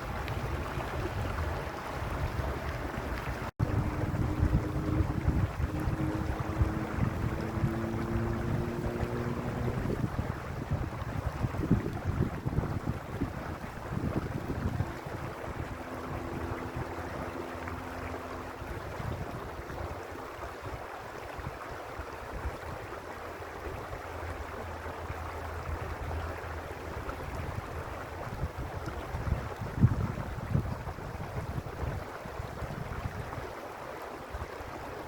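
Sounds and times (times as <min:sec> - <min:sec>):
wind buffeting microphone: 0:00.0 - 0:33.6
stream running over rocks: 0:00.0 - 0:35.0.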